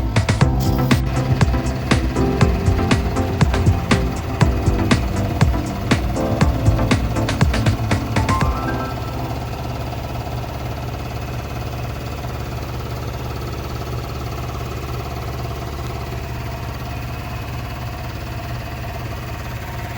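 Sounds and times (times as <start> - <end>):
diesel truck engine idling: 0.0 - 14.5.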